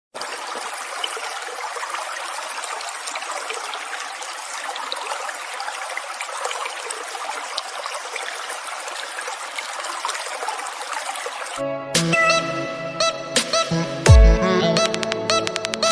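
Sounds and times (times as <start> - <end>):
running water trickling: 0.2 - 11.6.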